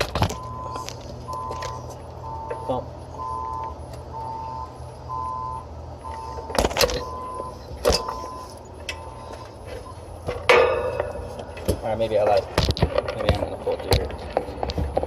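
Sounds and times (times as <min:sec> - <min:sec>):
low motor hum: 0:00.0 - 0:11.8
two-tone electronic beep: 0:00.4 - 0:10.0
metallic clanks: 0:07.8 - 0:13.4.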